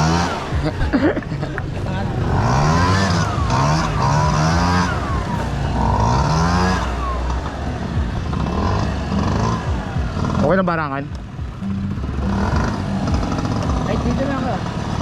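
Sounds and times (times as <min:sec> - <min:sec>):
scooter engine revving: 0:00.0 - 0:15.0.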